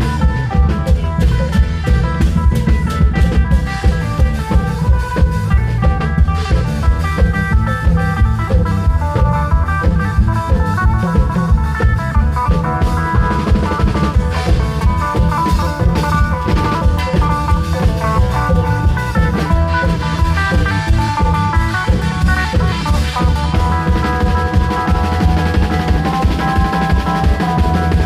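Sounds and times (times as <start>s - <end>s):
drum band playing: 0.0s - 28.0s
plucked melody: 0.0s - 28.0s.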